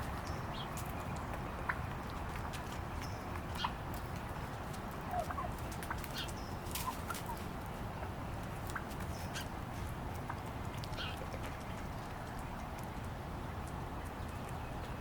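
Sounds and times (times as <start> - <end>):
turkeys clucking: 3.5 - 9.5.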